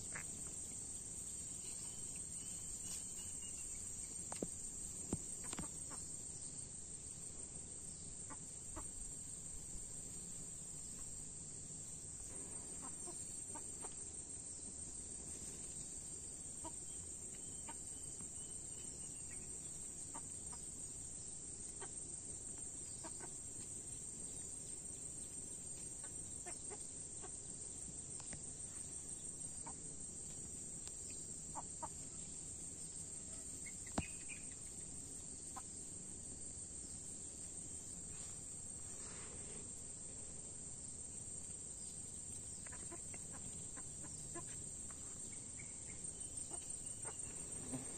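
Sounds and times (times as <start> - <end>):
steady high-pitched hiss: 0.0 - 47.9
chickens clucking: 42.6 - 45.0.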